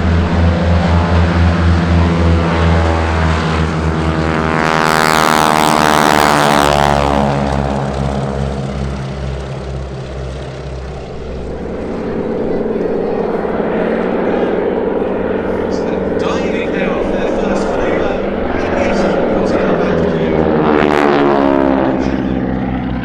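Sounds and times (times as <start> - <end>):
propeller aircraft flying past: 0.0 - 23.0.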